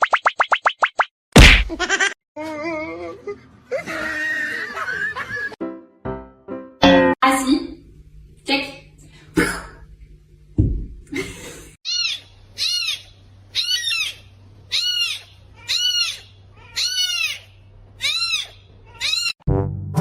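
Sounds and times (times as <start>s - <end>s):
cat meowing: 11.9s - 19.4s
brass music: 19.5s - 20.0s.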